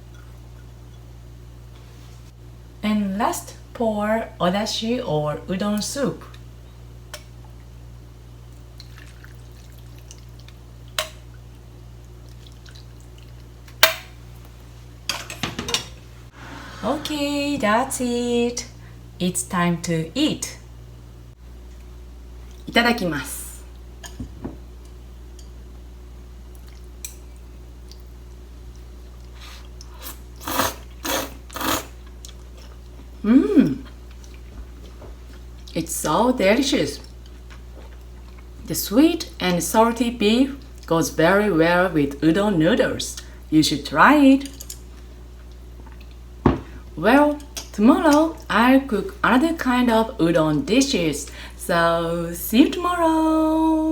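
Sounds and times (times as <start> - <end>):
steady low hum: 0.0 - 53.9
noodles being slurped: 29.3 - 32.0.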